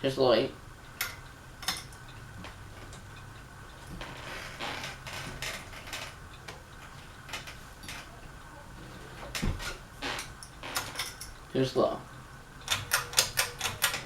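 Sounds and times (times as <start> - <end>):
low steady hum: 0.0 - 14.0
pull-chain switch clicks: 12.6 - 14.0.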